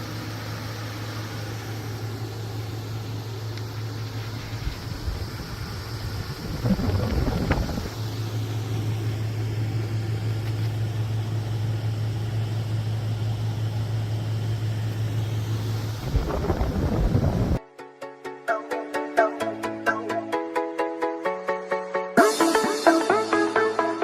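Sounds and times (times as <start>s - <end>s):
dehumidifier humming: 0.0s - 17.6s
rumbling and knocking: 6.3s - 8.0s, 16.0s - 17.6s.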